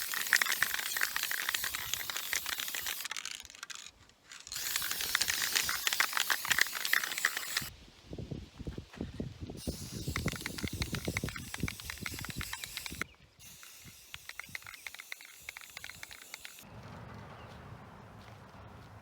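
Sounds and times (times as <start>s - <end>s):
spray paint can hissing: 0.0s - 3.9s, 4.5s - 7.7s, 9.6s - 16.6s.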